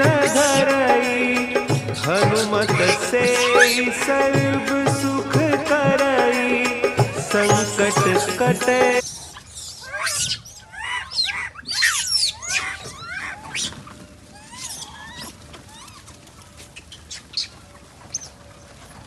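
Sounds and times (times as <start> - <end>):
squeaky animal calls: 1.7 - 4.2, 6.9 - 19.0.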